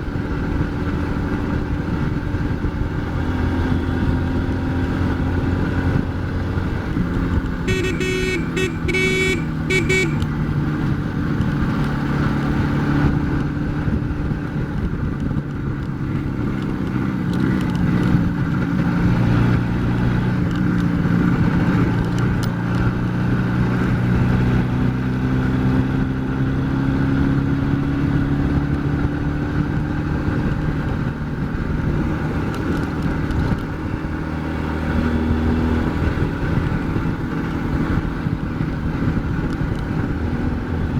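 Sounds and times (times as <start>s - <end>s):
motorcycle engine revving: 0.2s - 40.9s
horn short toots: 7.6s - 10.4s.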